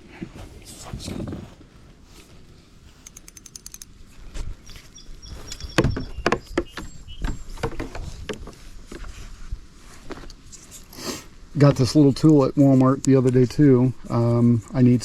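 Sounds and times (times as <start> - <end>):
small clicks rattling: 3.0 - 3.9.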